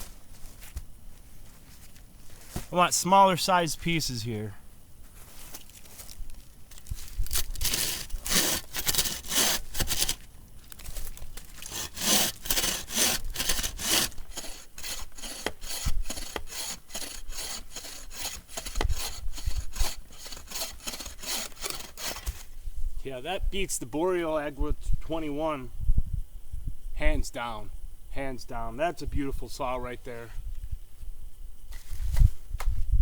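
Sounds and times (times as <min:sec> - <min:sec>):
hand saw cutting log: 0:07.4 - 0:10.2, 0:11.6 - 0:22.4.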